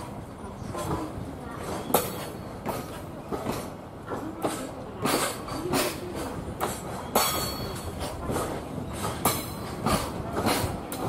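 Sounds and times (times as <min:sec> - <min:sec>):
freight train rumble: 0:00.0 - 0:11.0
wheels clacking over rail joints: 0:00.0 - 0:11.0.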